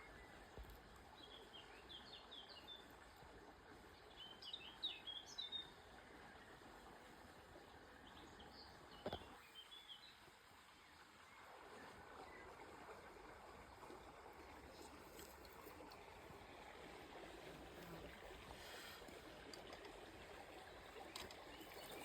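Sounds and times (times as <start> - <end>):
faint outdoor hiss: 0.0 - 22.0
songbird chirping: 21.0 - 22.0.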